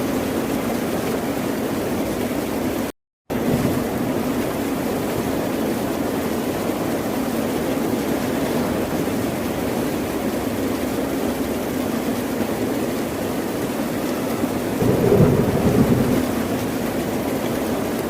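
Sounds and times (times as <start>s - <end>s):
sea rushing: 13.2s - 18.0s.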